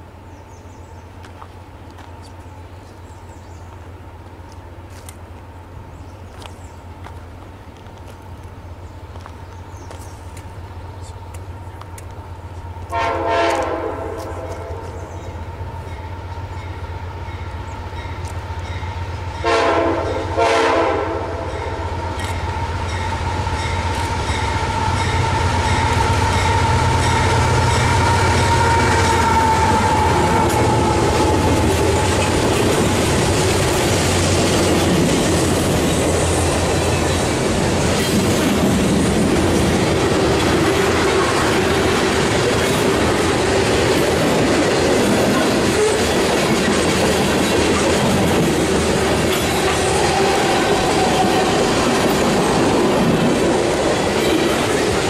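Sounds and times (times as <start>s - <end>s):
diesel locomotive engine: 0.0s - 55.0s
locomotive air horn: 12.9s - 14.9s, 19.4s - 22.0s, 24.5s - 32.1s
freight cars rumbling: 22.0s - 55.0s.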